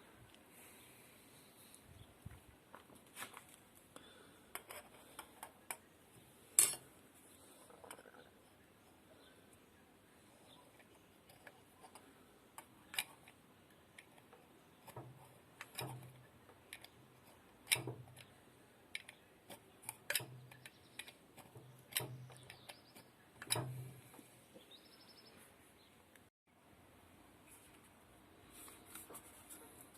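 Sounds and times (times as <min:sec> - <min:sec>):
small parts clicking and knocking: 0:02.7 - 0:05.9, 0:10.5 - 0:24.3.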